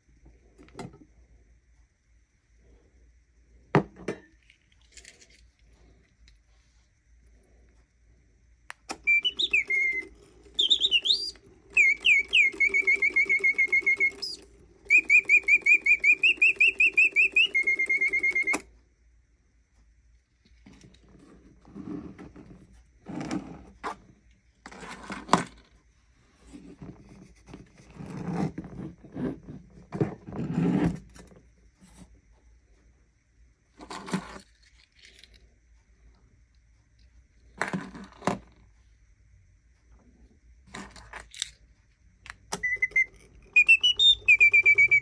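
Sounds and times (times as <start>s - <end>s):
mechanical hum: 0.0s - 45.0s
mechanical bird whistling: 8.9s - 18.7s, 42.6s - 45.0s.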